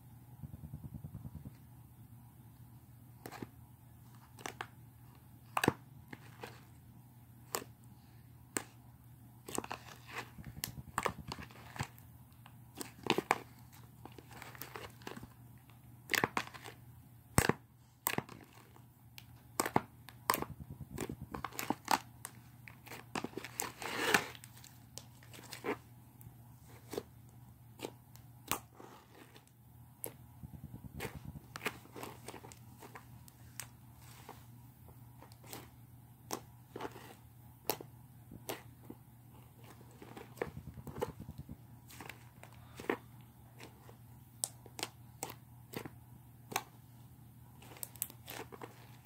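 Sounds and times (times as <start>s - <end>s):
slime squishing with sticky pops: 16.0s - 33.8s.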